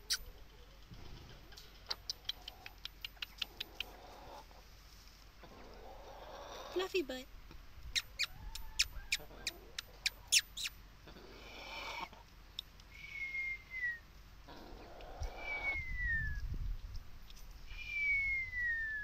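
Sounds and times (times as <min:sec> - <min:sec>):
soft rustling hisses: 0:04.0 - 0:05.8.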